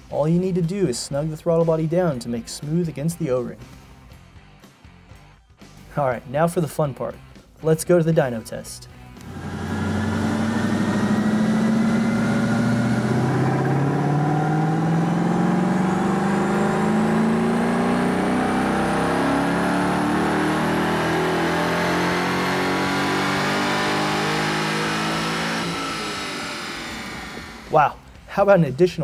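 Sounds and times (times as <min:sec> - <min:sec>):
car engine revving: 0:09.2 - 0:27.9.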